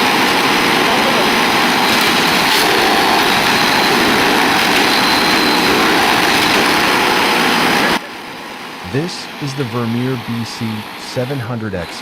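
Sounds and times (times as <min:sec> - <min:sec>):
small engine machine running: 0:00.0 - 0:12.0.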